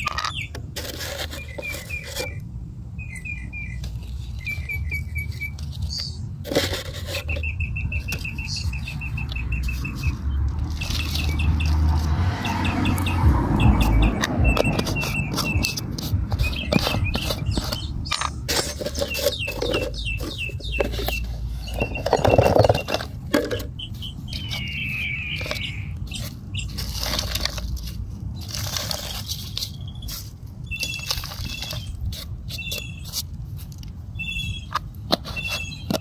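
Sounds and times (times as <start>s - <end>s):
birds chirping high notes: 1.3s - 6.3s, 7.2s - 15.8s, 16.4s - 26.9s.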